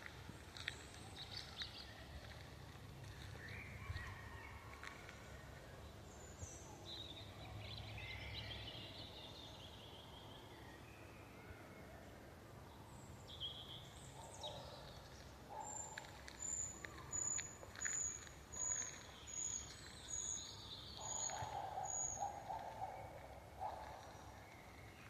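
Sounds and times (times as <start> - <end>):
small birds chirping: 0.0 - 4.2, 13.2 - 25.0.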